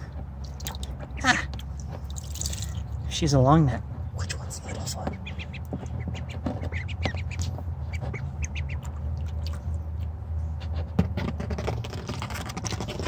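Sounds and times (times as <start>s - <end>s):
ducklings peeping: 0.0s - 10.2s
low steady hum: 0.0s - 13.0s
water splashes: 1.8s - 3.0s.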